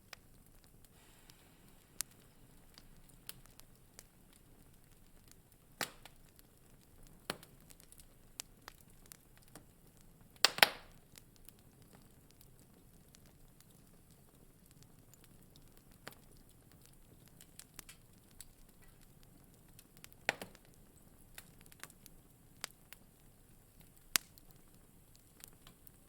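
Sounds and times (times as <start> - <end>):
faint hiss: 0.0 - 6.2
wood fire crackling: 0.0 - 26.0.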